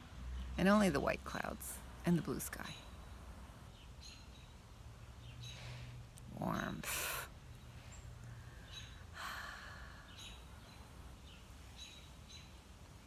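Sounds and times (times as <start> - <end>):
bird chirping: 2.1 - 9.1, 9.9 - 12.8.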